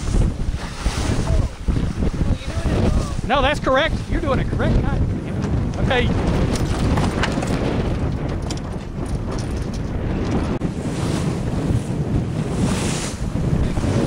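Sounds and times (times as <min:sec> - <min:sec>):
water splashing past hull: 0:00.0 - 0:09.0
wind buffeting microphone: 0:00.0 - 0:14.0.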